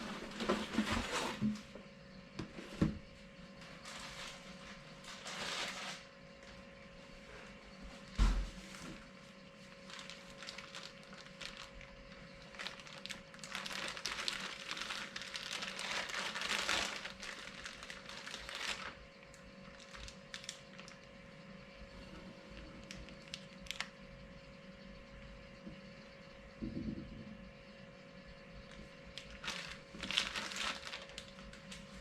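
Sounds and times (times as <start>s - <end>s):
faint steady hum: 0.0s - 32.0s
packaging crinkling: 9.7s - 21.1s, 22.8s - 24.0s, 28.7s - 32.0s.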